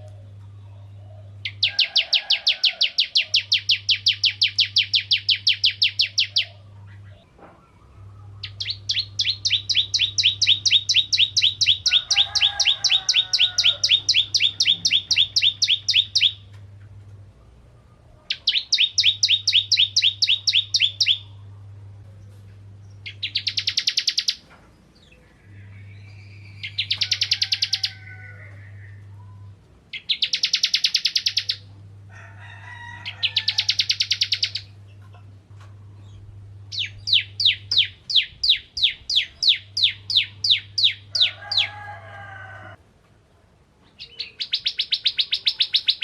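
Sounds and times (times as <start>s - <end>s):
faint low hum: 0.0s - 46.0s
bird singing high ticking notes: 1.3s - 7.3s, 8.4s - 16.6s, 18.3s - 21.4s, 22.9s - 24.5s, 25.2s - 31.7s, 33.2s - 35.0s, 36.0s - 41.7s, 44.0s - 46.0s.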